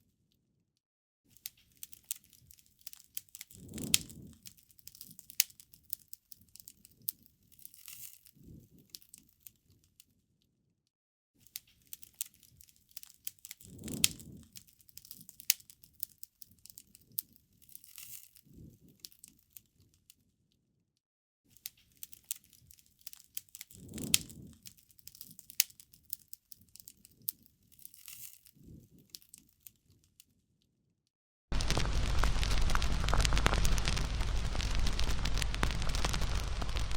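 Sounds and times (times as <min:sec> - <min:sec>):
fire pops and snaps: 0:01.8 - 0:09.1, 0:13.0 - 0:19.1, 0:22.0 - 0:25.8, 0:31.5 - 0:36.9
wood fire crackling: 0:02.8 - 0:05.0, 0:13.7 - 0:15.5, 0:31.5 - 0:36.9.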